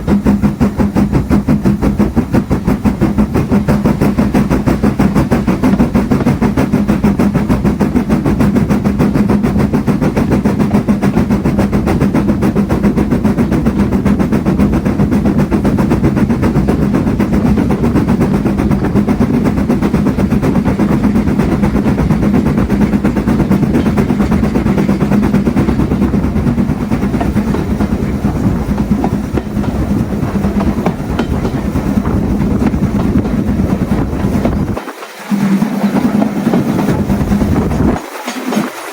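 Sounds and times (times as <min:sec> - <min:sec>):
train rumble and drone: 0:00.0 - 0:38.9
wheels clicking over rail joints: 0:00.0 - 0:38.9.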